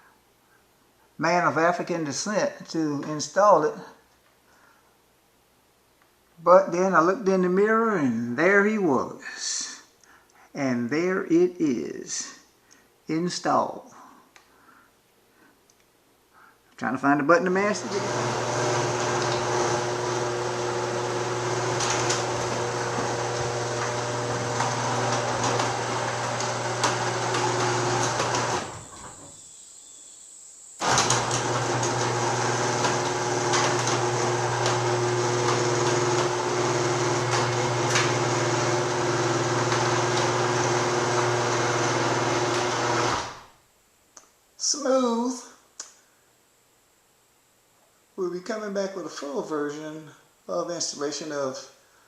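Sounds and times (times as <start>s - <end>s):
garage door opener motor running: 17.7s - 29.6s, 30.8s - 43.5s.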